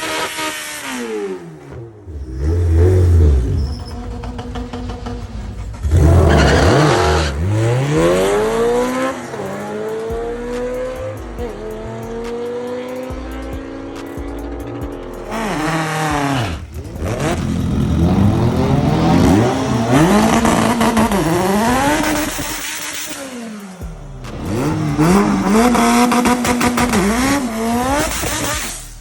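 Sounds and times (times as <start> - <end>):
car engine revving hard: 0.0 - 29.0
tyre squeal: 2.1 - 9.4.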